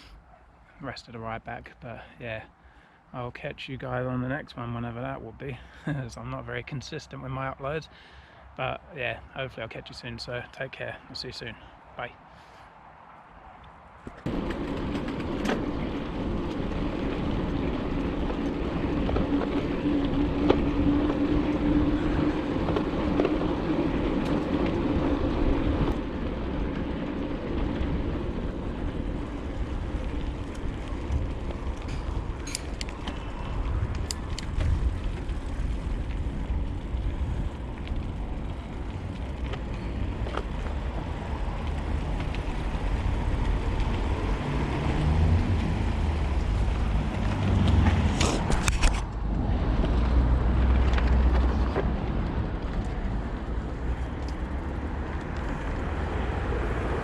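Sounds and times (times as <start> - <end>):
wind noise on microphone: 14.2 - 54.2.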